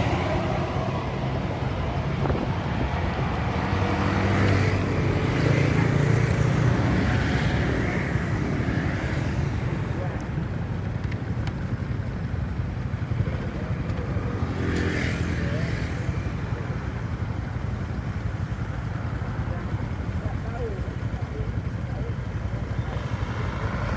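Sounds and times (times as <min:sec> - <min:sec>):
rumble of traffic: 0:00.0 - 0:23.9
vehicle engine running: 0:15.5 - 0:23.9.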